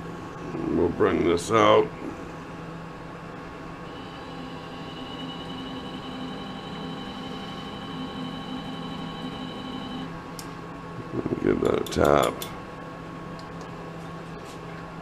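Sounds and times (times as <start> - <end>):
lathe motor hum with whine: 2.0 - 10.3.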